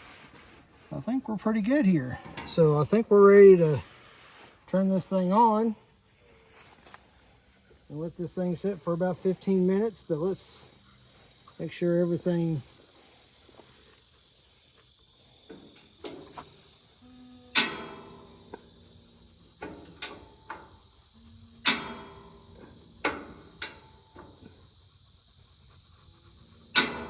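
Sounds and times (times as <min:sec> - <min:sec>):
griddle igniter clicking: 0:19.6 - 0:20.7, 0:21.6 - 0:24.4.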